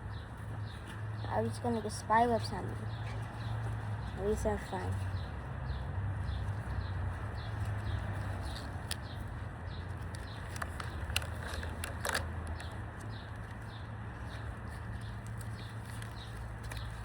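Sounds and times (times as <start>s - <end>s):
small bird chirping: 12.6s - 17.0s.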